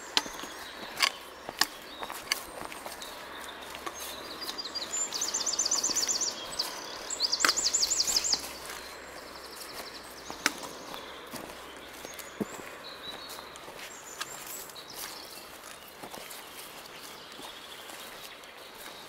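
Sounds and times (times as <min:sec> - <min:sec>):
songbird singing: 0:00.0 - 0:19.0.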